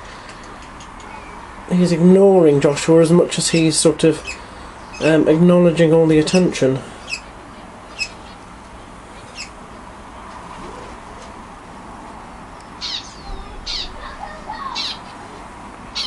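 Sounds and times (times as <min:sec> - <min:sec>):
budgerigars chirping and chattering: 0:03.4 - 0:05.3, 0:06.1 - 0:08.5, 0:09.2 - 0:09.6, 0:12.8 - 0:15.3.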